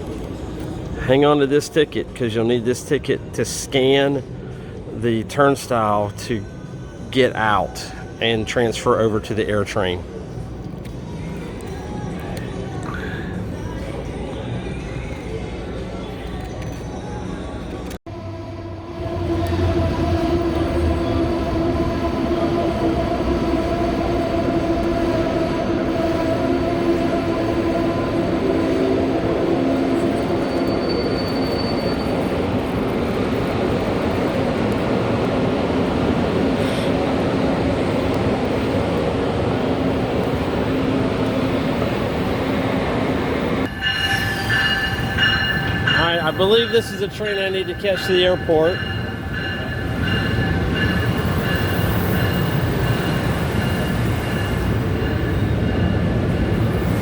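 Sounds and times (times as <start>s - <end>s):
passing train rumble: 0.0s - 57.0s
train humming tones: 0.0s - 57.0s
high squeal of train wheels: 19.1s - 33.5s, 43.6s - 57.0s.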